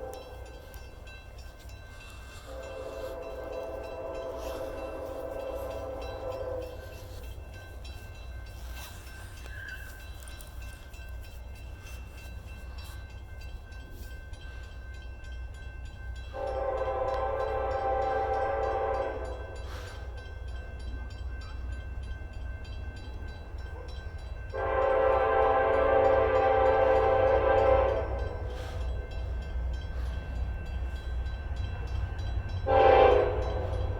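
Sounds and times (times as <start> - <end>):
train horn: 0.0 - 0.9, 2.0 - 7.4, 16.3 - 20.2, 24.5 - 29.2, 32.4 - 33.9
train rumble: 0.0 - 33.9.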